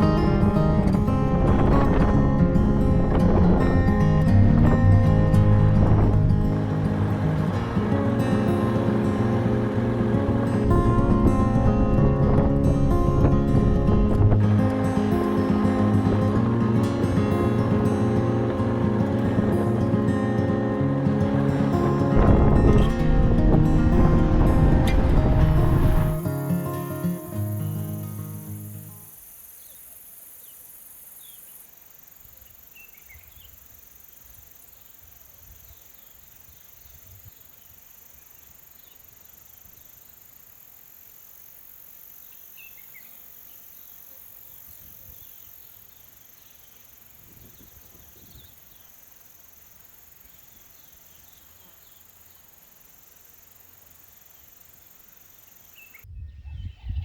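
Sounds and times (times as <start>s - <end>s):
insects trilling: 0.0s - 56.1s
soft low rumbles: 0.2s - 20.3s, 21.7s - 26.2s
bird chirps: 25.4s - 40.4s, 42.1s - 57.0s.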